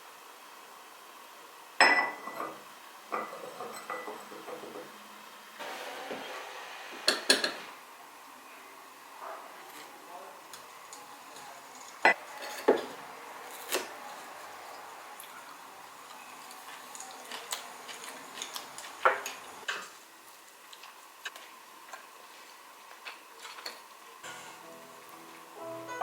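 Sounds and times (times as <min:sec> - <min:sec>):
dishes and cutlery clinking: 0:01.8 - 0:04.9, 0:11.4 - 0:13.0.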